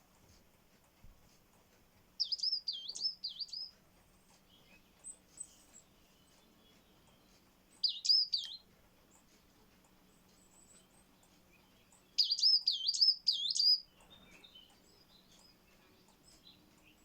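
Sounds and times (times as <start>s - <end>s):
coal tit calling: 2.2s - 3.7s, 6.2s - 9.3s, 10.4s - 17.0s.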